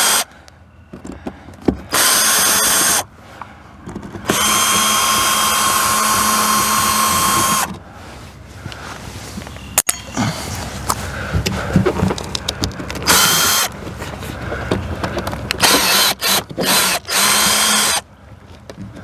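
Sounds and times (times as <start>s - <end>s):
power drill whining: 0.0s - 0.3s, 1.9s - 3.1s, 4.2s - 7.8s, 13.0s - 13.8s, 15.6s - 18.0s.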